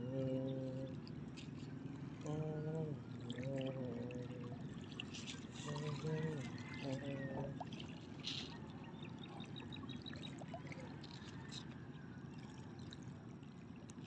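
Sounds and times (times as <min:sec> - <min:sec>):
water trickling and lapping: 0:00.0 - 0:14.0.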